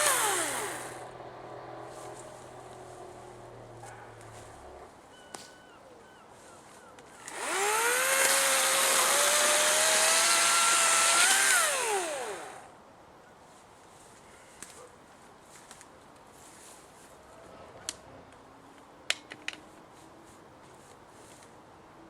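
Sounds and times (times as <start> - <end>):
electric chainsaw running: 0.0 - 3.7, 7.2 - 12.7.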